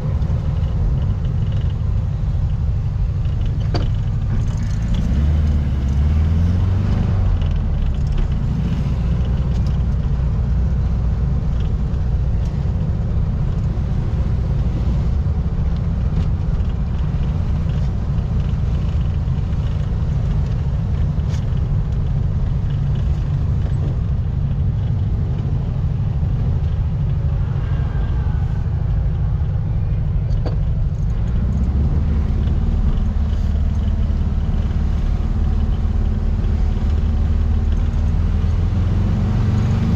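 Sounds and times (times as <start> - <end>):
car engine running: 0.0 - 39.9
road noise hiss: 8.3 - 39.9.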